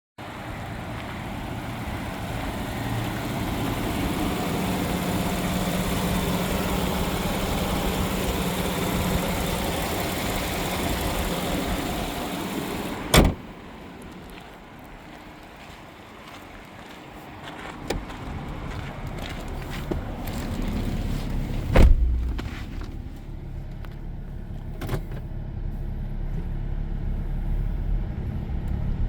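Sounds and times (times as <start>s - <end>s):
pickup engine idling: 0.2s - 15.4s.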